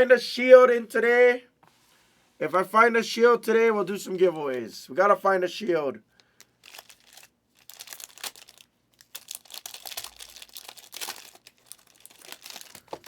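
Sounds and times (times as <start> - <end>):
card wrappers crinkling and tearing: 6.2 - 13.0
cards being handled: 11.4 - 13.0.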